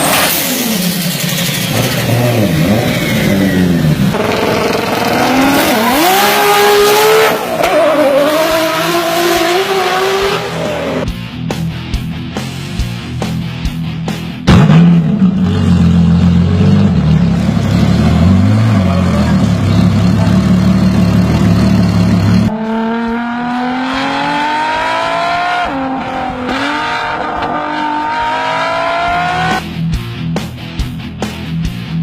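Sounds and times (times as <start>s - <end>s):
engine revving and accelerating: 0.0s - 11.1s, 14.5s - 29.7s
car engine rumbling at low revs: 14.5s - 23.5s.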